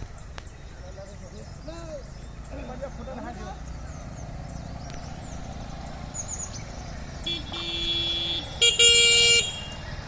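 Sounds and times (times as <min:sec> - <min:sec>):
engine rumbling: 0:00.0 - 0:10.0
vehicle horn: 0:07.2 - 0:09.9.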